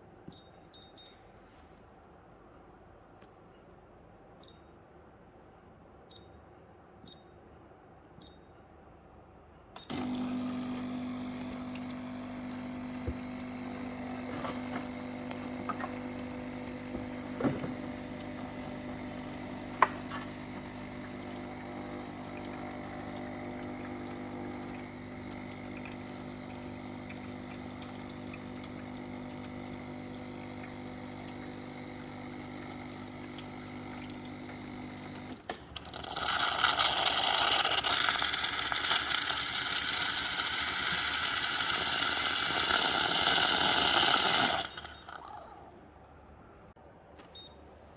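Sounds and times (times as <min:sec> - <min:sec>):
espresso machine pump humming: 0:09.9 - 0:45.6.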